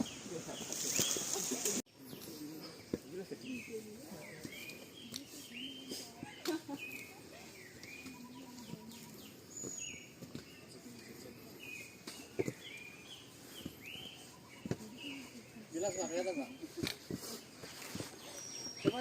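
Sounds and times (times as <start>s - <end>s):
faint voices: 0.0s - 19.0s
bird calling: 3.5s - 19.0s.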